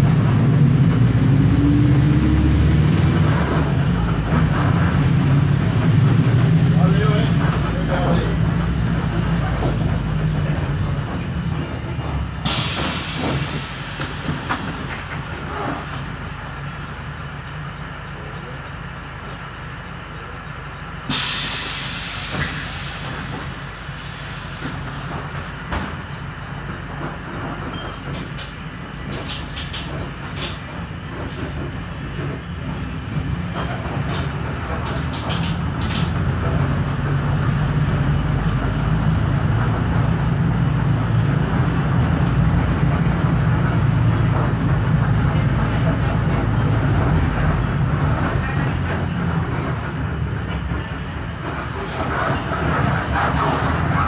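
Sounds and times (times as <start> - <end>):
bus diesel engine running: 0.0 - 54.0
compressed air hisses: 21.1 - 24.6.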